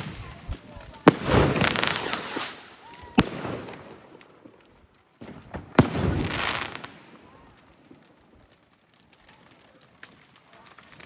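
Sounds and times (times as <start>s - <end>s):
fireworks bangs: 0.0s - 8.5s
fireworks crackling: 0.0s - 11.0s.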